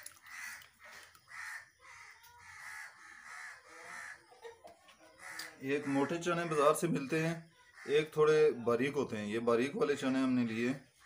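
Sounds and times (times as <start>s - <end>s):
chickpeas splashing into water: 0.0s - 1.4s
birds calling: 0.0s - 8.4s.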